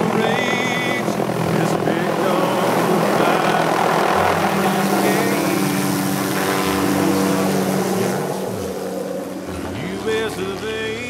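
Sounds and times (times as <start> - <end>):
faint country song with singing: 0.0 - 7.1, 9.5 - 11.0
helicopter rotor and engine: 0.0 - 11.0.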